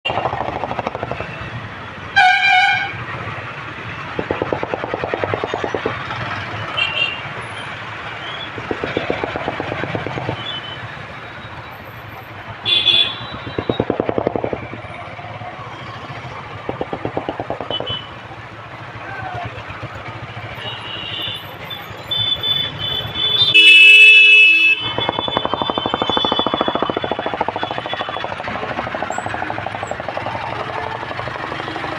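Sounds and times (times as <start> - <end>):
motorcycle engine thumping: 0.1 - 1.6, 4.1 - 6.3, 8.5 - 11.2, 12.8 - 15.0, 16.6 - 18.2, 24.8 - 31.9
loud vehicle horn honk: 2.2 - 3.0, 12.7 - 13.4, 22.1 - 24.9.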